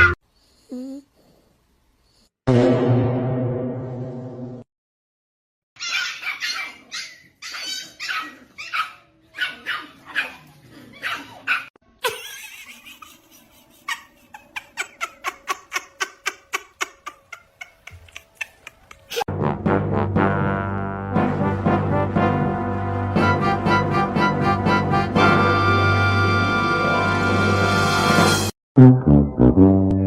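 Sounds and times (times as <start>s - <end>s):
dog barking: 5.8s - 11.7s.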